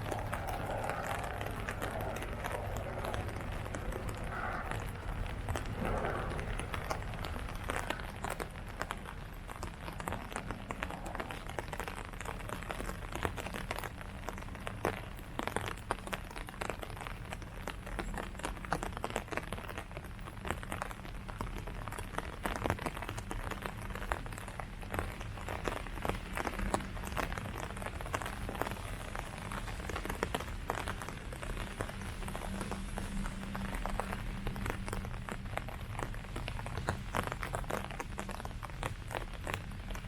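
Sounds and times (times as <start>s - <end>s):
low steady rumble: 0.0s - 15.3s, 23.5s - 40.0s
rain dripping on leaves: 0.0s - 40.0s.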